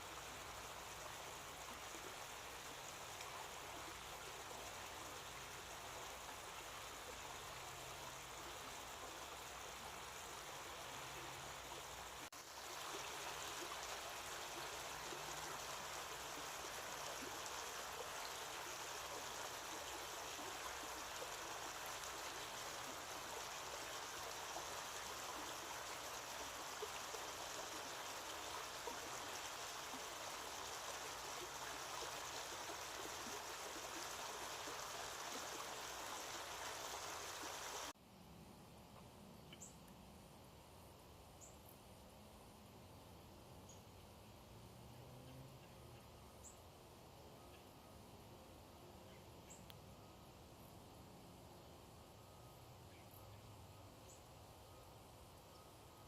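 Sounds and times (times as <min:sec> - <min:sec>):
running water: 0:00.0 - 0:38.0.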